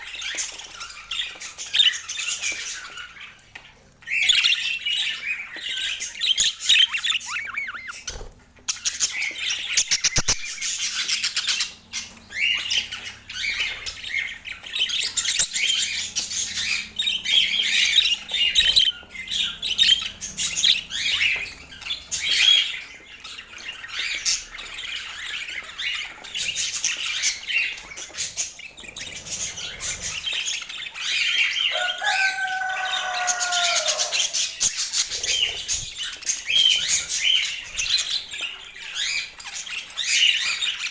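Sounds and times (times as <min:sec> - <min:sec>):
budgerigars chattering: 0:04.1 - 0:40.9.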